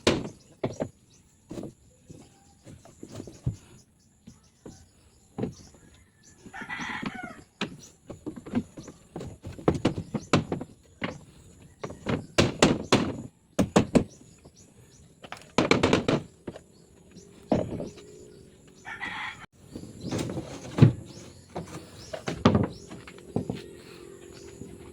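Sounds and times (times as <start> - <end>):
demolition knocks and bangs: 15.4 - 16.6.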